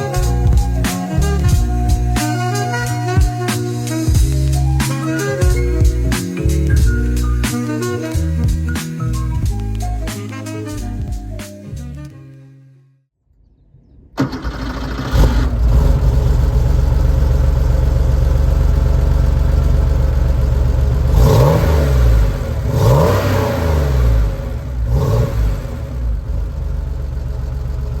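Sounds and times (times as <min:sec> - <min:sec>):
engine revving: 0:14.2 - 0:18.9, 0:19.5 - 0:26.9
car engine starting and idling: 0:14.2 - 0:28.0.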